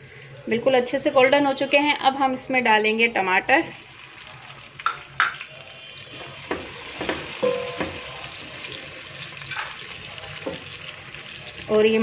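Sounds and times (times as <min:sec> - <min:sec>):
tomatoes sizzling in hot oil: 0:03.2 - 0:12.0.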